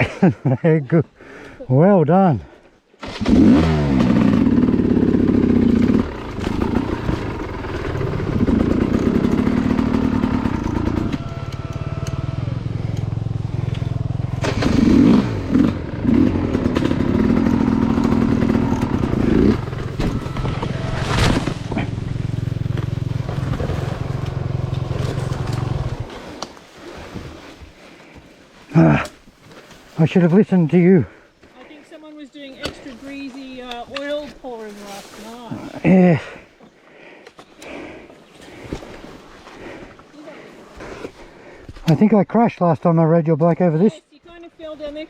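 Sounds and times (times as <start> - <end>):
dirt bike engine revving: 3.0 - 26.4.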